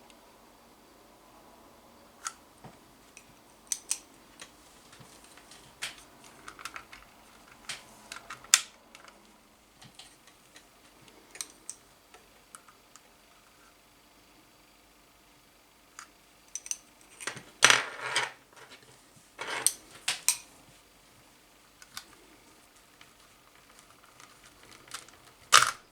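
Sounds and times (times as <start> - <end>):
small hard parts clicking: 3.7 - 9.2, 23.0 - 25.8.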